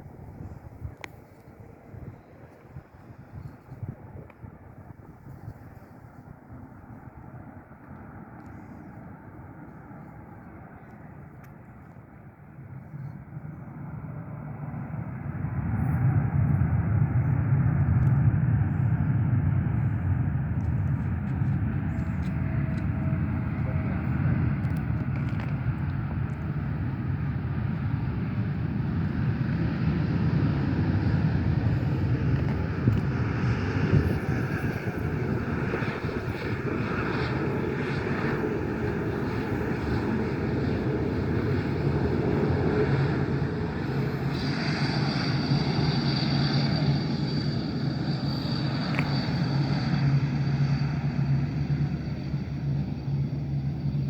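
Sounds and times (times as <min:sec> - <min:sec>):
airliner engines rumbling: 0:00.0 - 0:54.0
thin high whine: 0:31.6 - 0:54.0.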